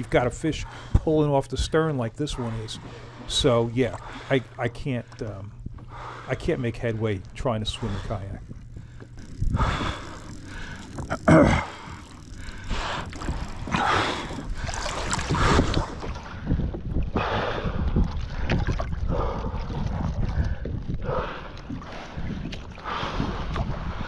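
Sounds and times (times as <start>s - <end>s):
wind rumbling on microphone: 7.3s - 24.0s
water splashing from swimming: 9.6s - 24.0s.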